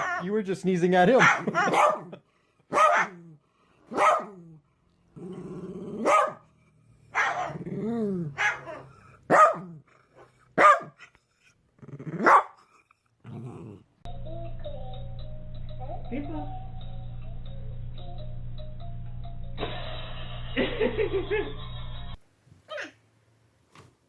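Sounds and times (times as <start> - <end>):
dog barking: 1.2 - 3.2, 3.9 - 4.4, 6.0 - 6.5, 7.1 - 7.6, 8.4 - 9.8, 10.6 - 11.0, 12.2 - 12.6
dog growling: 4.2 - 10.5, 11.6 - 14.1.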